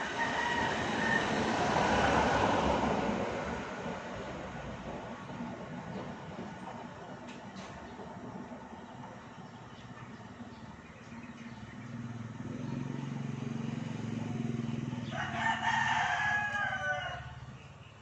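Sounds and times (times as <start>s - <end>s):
rooster crowing: 0.0s - 2.1s, 15.0s - 17.4s.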